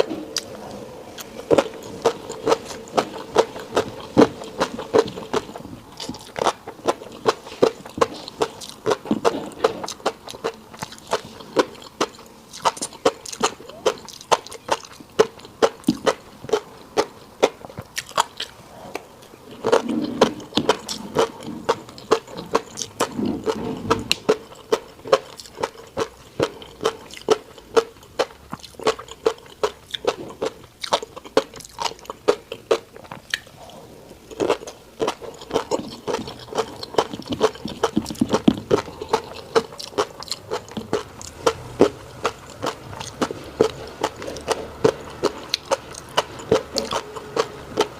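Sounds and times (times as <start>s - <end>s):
chewing with clicky pops: 1.2s - 47.9s.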